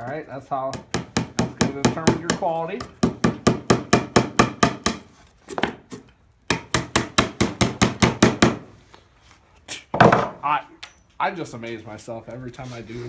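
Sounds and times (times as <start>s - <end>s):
hammer striking wood: 0.7s - 5.8s, 6.5s - 8.7s.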